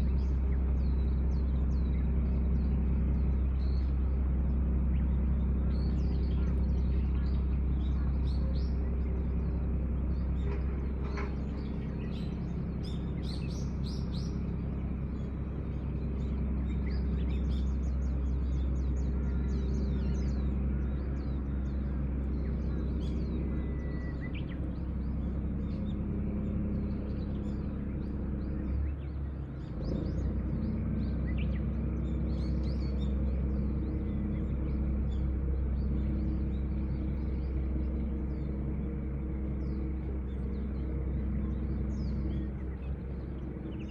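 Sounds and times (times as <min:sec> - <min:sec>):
small birds chirping: 0:00.0 - 0:43.9
steady low hum: 0:00.0 - 0:43.9.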